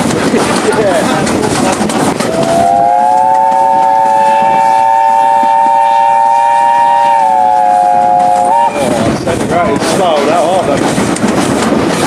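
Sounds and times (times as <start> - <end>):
steam locomotive whistle blast: 2.3 - 8.9.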